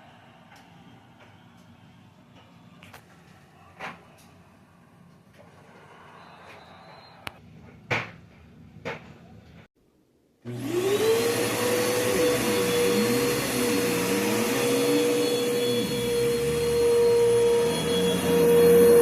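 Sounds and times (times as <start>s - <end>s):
upright vacuum cleaner running: 10.5s - 19.0s.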